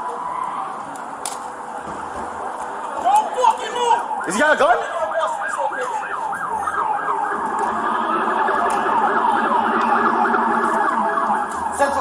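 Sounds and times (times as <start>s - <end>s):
siren yelping: 2.4s - 12.0s.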